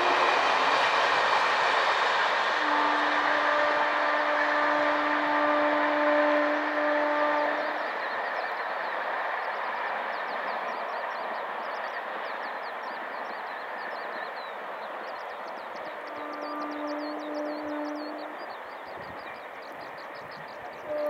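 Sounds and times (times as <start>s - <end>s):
train rushing noise: 0.0s - 21.0s
locomotive horn chord: 2.6s - 7.8s, 16.0s - 18.4s.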